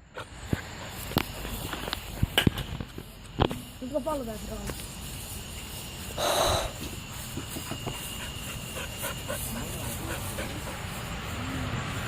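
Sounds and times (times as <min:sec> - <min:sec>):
breathy huff: 0:06.2 - 0:07.0.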